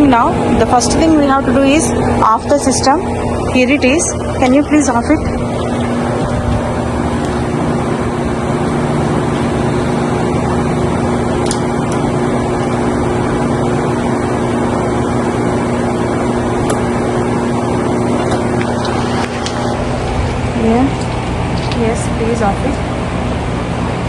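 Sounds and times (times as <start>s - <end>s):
compressor hum: 0.0s - 24.0s
fan rushing: 0.0s - 24.0s.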